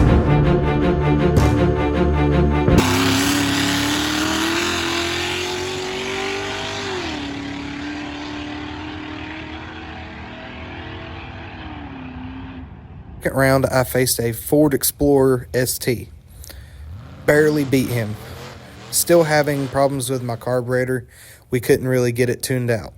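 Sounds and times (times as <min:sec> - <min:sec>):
car engine accelerating: 0:02.6 - 0:13.7, 0:16.1 - 0:21.0.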